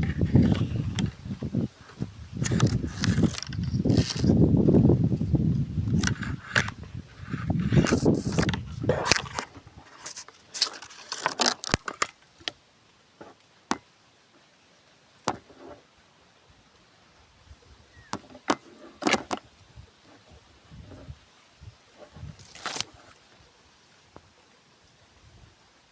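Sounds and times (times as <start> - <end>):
rustling: 0.0 - 12.6, 21.9 - 23.5.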